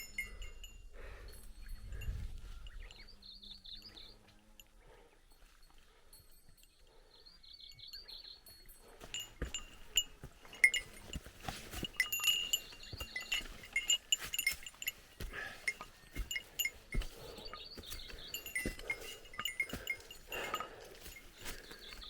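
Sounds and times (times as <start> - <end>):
small bell jingling: 0.0 - 7.0, 7.6 - 22.0
footsteps: 8.9 - 22.0.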